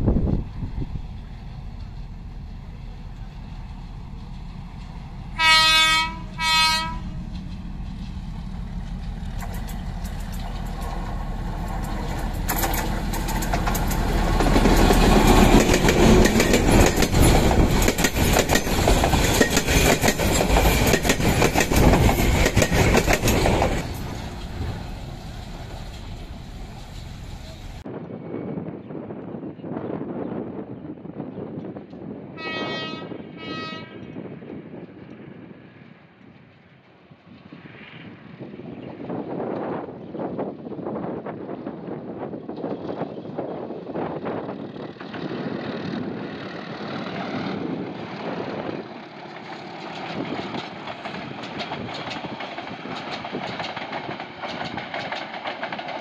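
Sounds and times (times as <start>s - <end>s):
locomotive horn: 5.4s - 7.2s, 32.4s - 34.1s
train wheels clattering: 6.8s - 27.8s, 49.1s - 56.0s.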